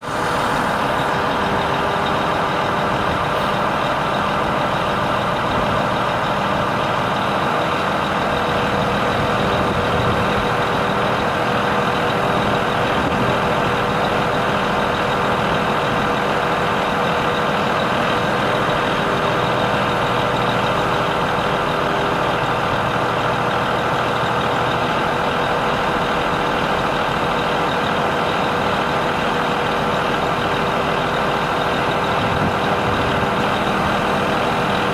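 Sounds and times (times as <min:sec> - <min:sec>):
truck diesel engine running: 0:00.0 - 0:34.9.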